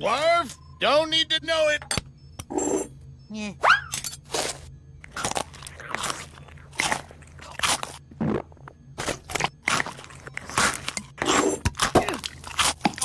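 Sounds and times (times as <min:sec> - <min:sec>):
cartoon chewing crunches: 0:04.3 - 0:13.0.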